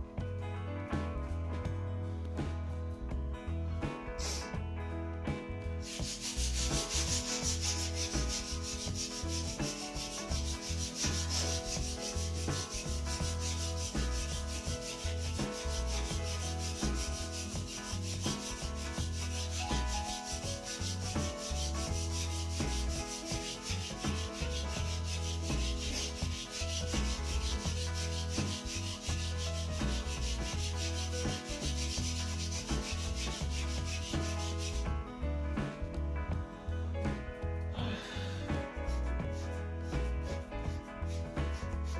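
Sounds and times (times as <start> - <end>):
sandpaper rubbing wood: 4.2 - 4.5, 5.8 - 34.9, 38.9 - 41.9.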